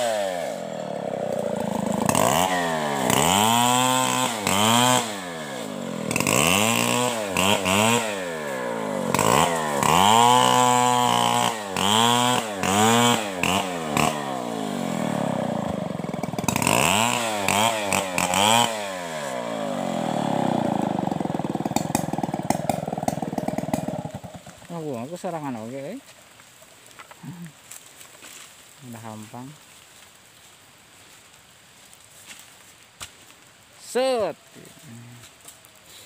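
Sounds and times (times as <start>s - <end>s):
chainsaw revving: 0.0s - 25.6s.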